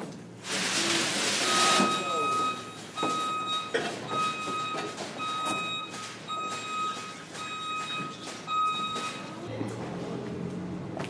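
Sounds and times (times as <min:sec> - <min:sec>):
vehicle reversing alarm beeping: 0:01.4 - 0:09.5.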